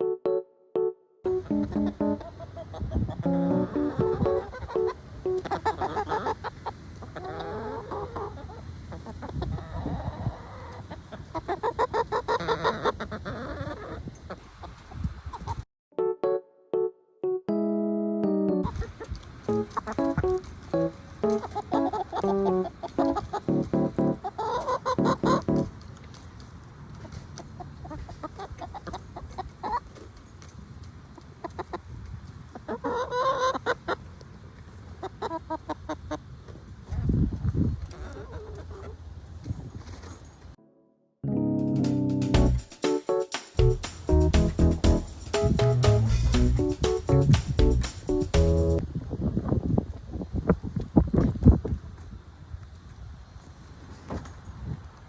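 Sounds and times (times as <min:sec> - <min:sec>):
chickens clucking: 0:01.3 - 0:15.6, 0:18.6 - 0:25.7, 0:27.0 - 0:30.0, 0:31.1 - 0:37.1.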